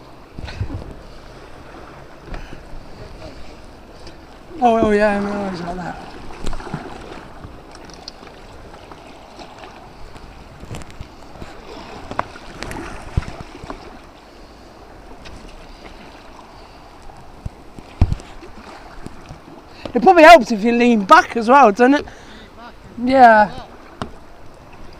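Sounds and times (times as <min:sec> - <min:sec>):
wind on microphone: 0:00.0 - 0:07.7, 0:08.4 - 0:20.1
water sloshing around kayak: 0:00.0 - 0:24.9
paddle knocking hull: 0:01.8 - 0:09.9, 0:23.6 - 0:24.9.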